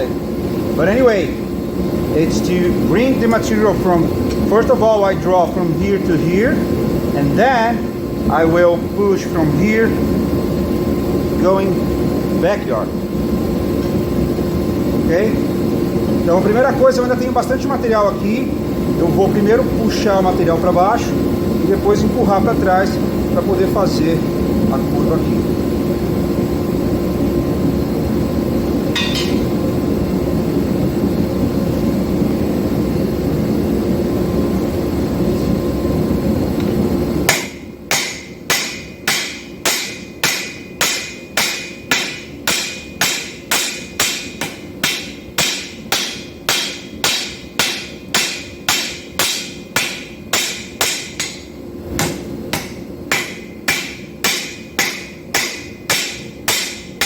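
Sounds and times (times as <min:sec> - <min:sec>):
loud steady roar: 0:00.0 - 0:57.0
hammer ringing on steel on anvil: 0:28.9 - 0:29.6, 0:37.3 - 0:57.0.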